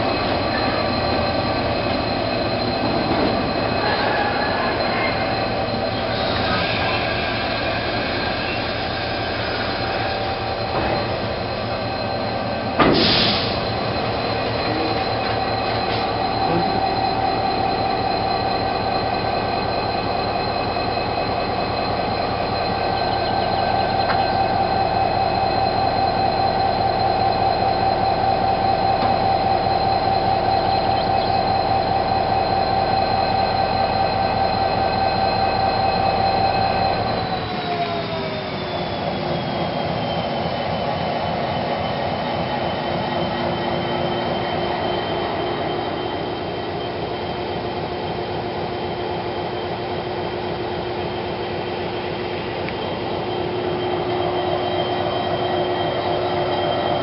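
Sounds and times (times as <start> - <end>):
freight wagons rumbling on rails: 0.0 - 57.0
locomotive high whine: 0.0 - 57.0.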